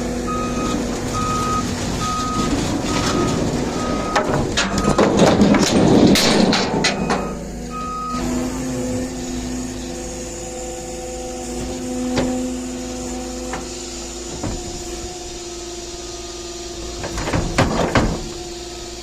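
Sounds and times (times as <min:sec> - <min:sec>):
heavy vehicle engine running: 0:00.0 - 0:19.0
reversing alarm beeps: 0:00.3 - 0:05.1, 0:06.9 - 0:08.3
clanking: 0:00.6 - 0:08.3, 0:11.6 - 0:15.5, 0:16.8 - 0:18.6.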